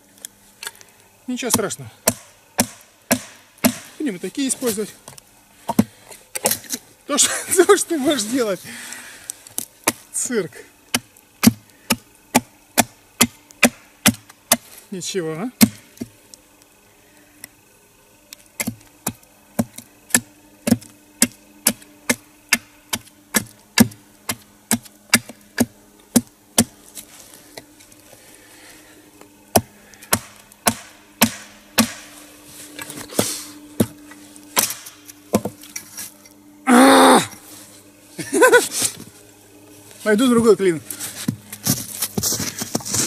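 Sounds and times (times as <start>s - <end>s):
hammer knocking wedges into log: 1.5s - 3.9s, 5.7s - 6.6s, 10.9s - 14.6s, 29.5s - 32.1s, 34.6s - 35.6s.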